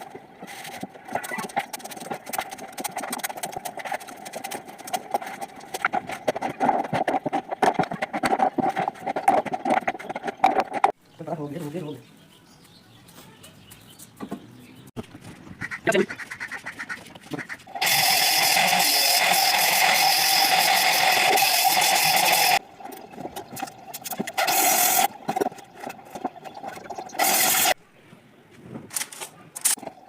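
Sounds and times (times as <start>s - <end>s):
power tool cutting wood: 17.8s - 22.6s.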